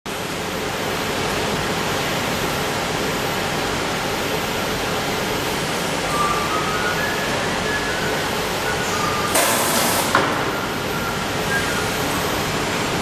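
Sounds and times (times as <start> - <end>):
machinery rushing hiss: 4.6 - 13.0.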